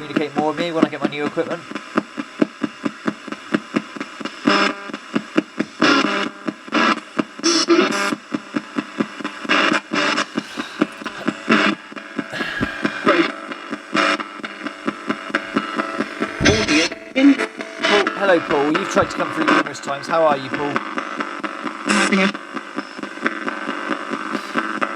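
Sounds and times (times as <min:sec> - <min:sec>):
radio static bursts: 0:00.0 - 0:24.9
broadcast sound fragments: 0:18.0 - 0:20.6.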